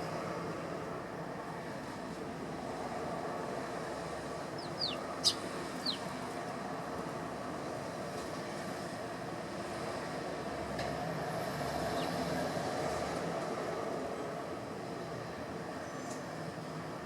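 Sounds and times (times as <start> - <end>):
sparrows chirping: 4.5 - 6.2, 11.9 - 12.2.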